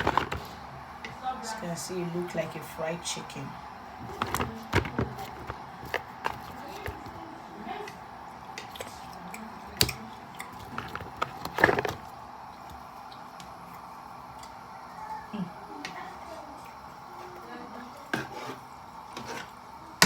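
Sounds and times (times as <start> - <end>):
utensils and cookware clattering: 0.0 - 0.7, 4.0 - 12.1, 18.0 - 19.6
steady background hum: 0.0 - 20.0.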